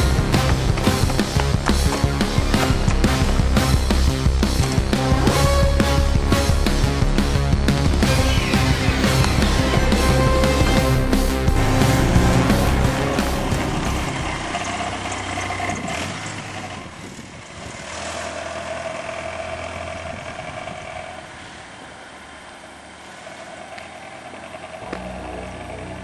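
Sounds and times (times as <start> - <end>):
music: 0.0 - 14.8, 24.8 - 26.0
engine humming: 0.0 - 26.0.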